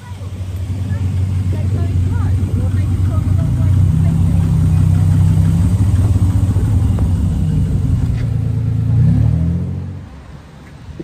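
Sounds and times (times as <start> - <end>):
car engine idling and revving: 0.0 - 11.0.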